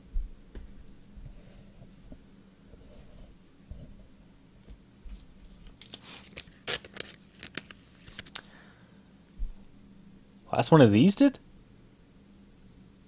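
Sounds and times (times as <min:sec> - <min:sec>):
foil wrapper crinkling and ripping: 0:05.7 - 0:08.5.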